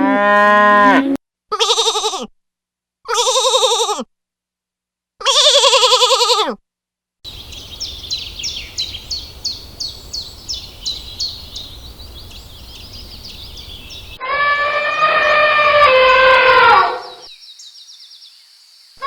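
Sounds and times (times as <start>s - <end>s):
loud horn-like call: 0.0s - 1.2s, 14.2s - 17.3s
outdoor background hiss: 7.3s - 14.2s, 15.0s - 19.0s
bird chirping: 7.3s - 19.0s.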